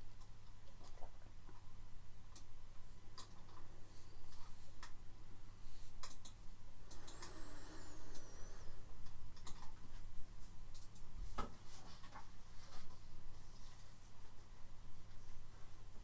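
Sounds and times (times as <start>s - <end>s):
faint clicks and ticks: 0.0s - 5.0s, 5.9s - 12.3s
low steady hum: 0.0s - 16.0s
faint wavering high whistle: 7.0s - 8.9s.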